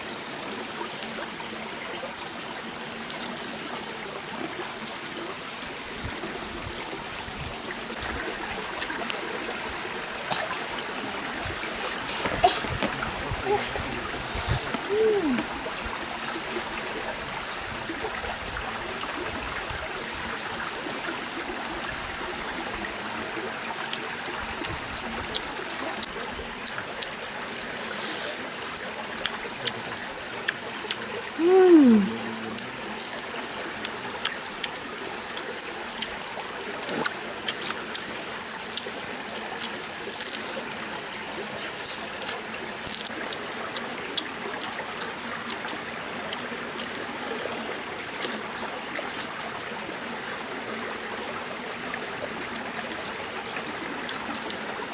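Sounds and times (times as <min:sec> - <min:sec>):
stream water trickling: 0:00.0 - 0:54.9
falling voice-like tone: 0:12.2 - 0:15.5, 0:31.4 - 0:32.8.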